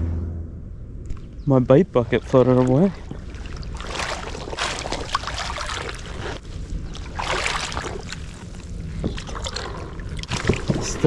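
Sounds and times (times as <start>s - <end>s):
steady low rumble: 0.0s - 11.0s
lake waves splashing at shore: 2.0s - 8.4s.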